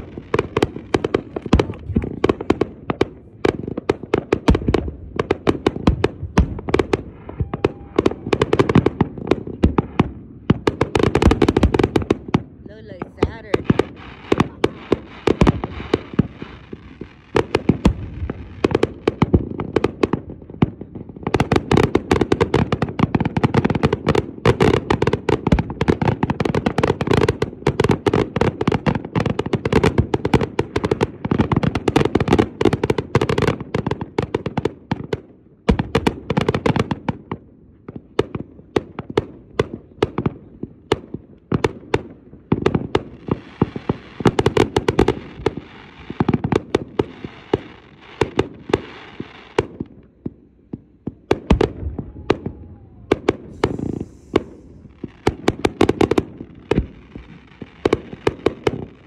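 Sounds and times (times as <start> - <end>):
fireworks bangs and pops: 0.0 - 59.0
fireworks hiss: 12.7 - 17.2, 53.4 - 58.2.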